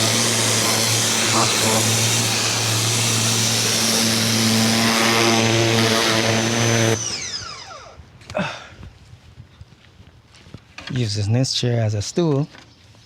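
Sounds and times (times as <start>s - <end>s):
water spray hissing: 0.0s - 6.7s
motor winding down: 0.0s - 8.0s
pressure washer motor humming: 0.0s - 8.0s.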